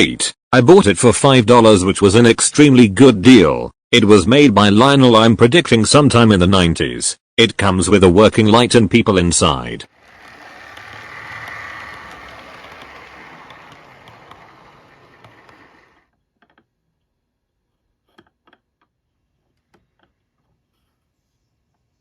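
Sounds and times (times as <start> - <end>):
model train clattering: 9.9 - 16.0
scattered clicks: 10.0 - 15.9.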